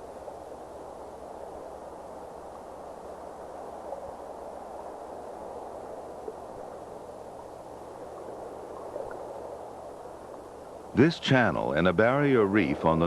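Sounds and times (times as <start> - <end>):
faint ticks: 0.0 - 11.0
ambient hiss: 0.0 - 13.0.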